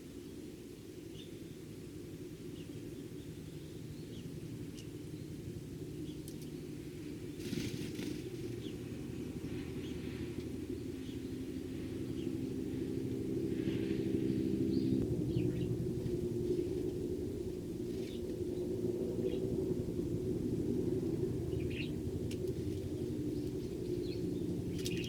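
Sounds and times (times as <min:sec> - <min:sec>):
sparrows chirping: 0:00.0 - 0:20.2, 0:21.1 - 0:25.0
low background rumble: 0:00.0 - 0:25.0.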